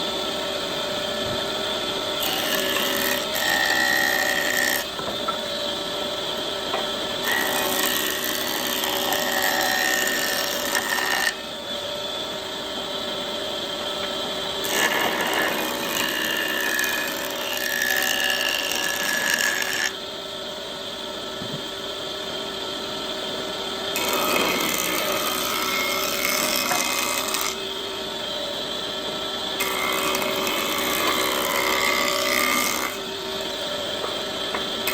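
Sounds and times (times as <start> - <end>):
power tools cutting wood: 2.1 - 5.4, 6.7 - 11.4, 14.6 - 20.0, 23.9 - 27.7, 29.6 - 34.9.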